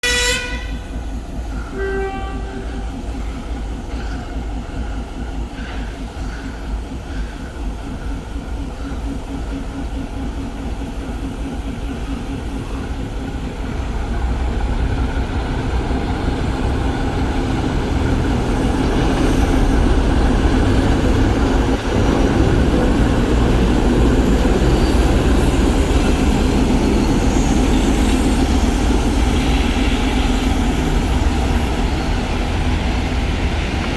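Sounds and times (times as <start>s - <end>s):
locomotive horn blast: 0.0s - 0.8s, 1.7s - 3.0s
diesel engine rumble: 6.1s - 33.9s.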